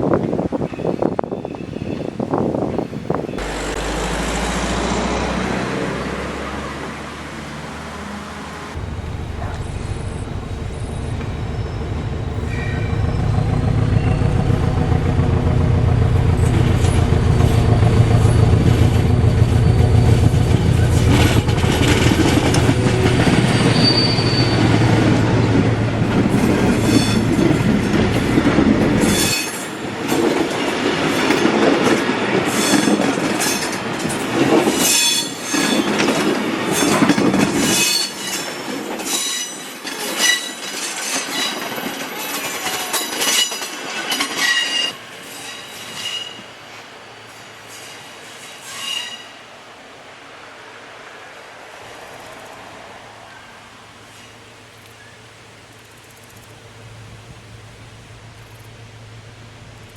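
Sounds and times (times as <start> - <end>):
diesel locomotive engine: 0.0 - 59.9
wheels clattering over rail joints: 3.4 - 49.4
high-pitched flange squeal: 16.8 - 25.5, 47.7 - 49.4.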